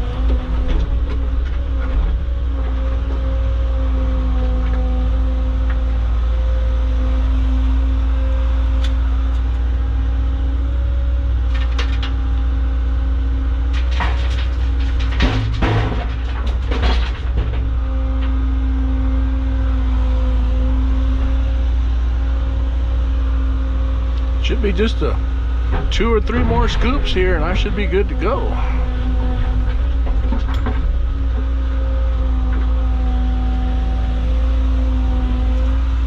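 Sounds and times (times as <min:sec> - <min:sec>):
engine whine: 0:00.0 - 0:36.0
excavator diesel engine rumble: 0:00.0 - 0:36.0
bucket knocking and scraping rock: 0:13.8 - 0:17.7, 0:25.7 - 0:31.0.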